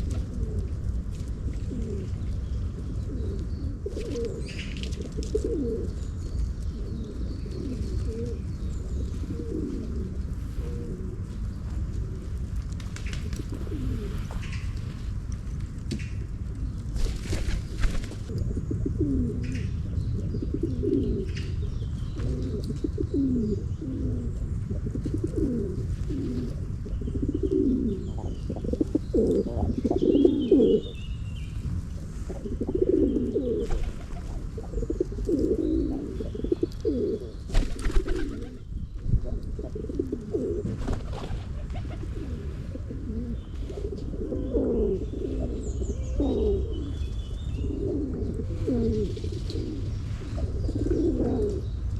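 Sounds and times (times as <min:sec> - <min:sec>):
pigeons cooing: 0:00.0 - 0:15.3, 0:16.4 - 0:51.9
steady low rumble: 0:00.0 - 0:51.9
small birds chirping: 0:19.4 - 0:41.2.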